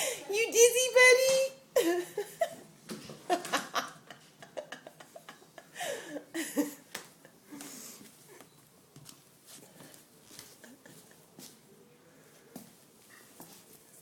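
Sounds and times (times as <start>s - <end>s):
person laughing softly: 10.4s - 11.5s.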